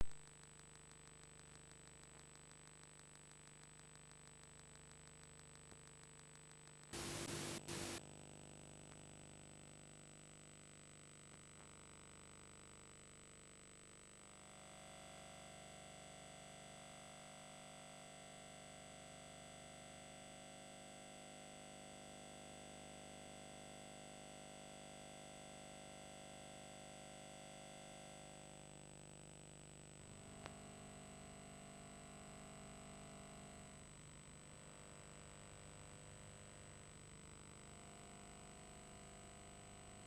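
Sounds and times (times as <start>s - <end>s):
tape hum and hiss: 0.0s - 8.1s, 30.2s - 30.8s
burst of static: 7.0s - 8.0s.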